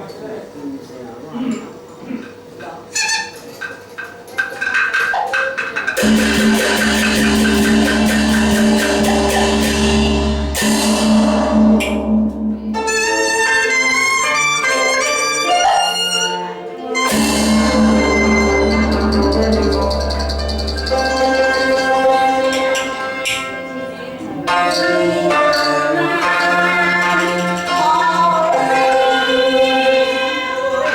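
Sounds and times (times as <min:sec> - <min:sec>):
percussion strikes: 0:03.6 - 0:30.9
cymbal crash: 0:06.0 - 0:13.2, 0:17.0 - 0:23.6
opera ensemble playing: 0:06.0 - 0:30.9.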